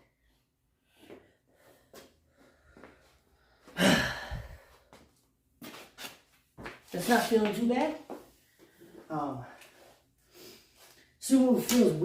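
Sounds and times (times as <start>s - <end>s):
man breathing hard: 0.8s - 5.0s.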